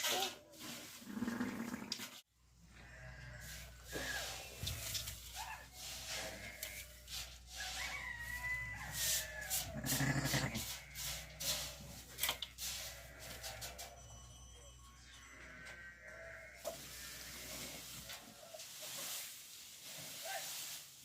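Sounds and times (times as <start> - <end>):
hay and straw rustling: 0.0 - 1.6, 2.8 - 13.9, 15.5 - 21.0
sheep bleating: 2.7 - 3.6, 9.7 - 11.2, 12.8 - 13.8, 15.2 - 17.6.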